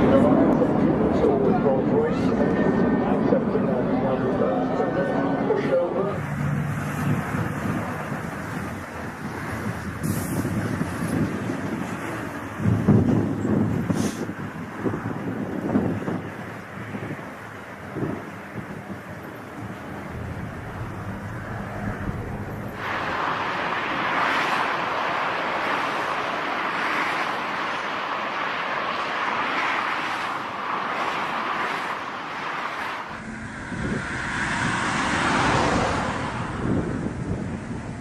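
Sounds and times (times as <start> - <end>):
jet engine noise: 0.0 - 38.0
wind on microphone: 6.2 - 26.3, 33.1 - 38.0.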